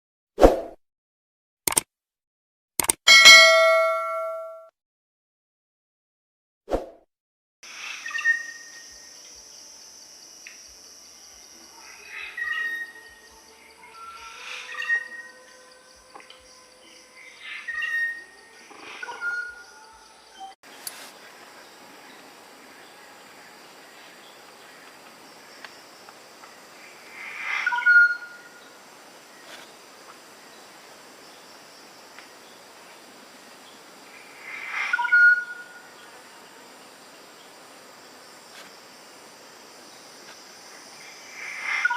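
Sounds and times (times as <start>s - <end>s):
high insect hum: 7.7s - 41.9s
bird whistled calls: 8.0s - 8.7s, 14.6s - 15.3s, 27.6s - 28.5s, 34.9s - 35.7s.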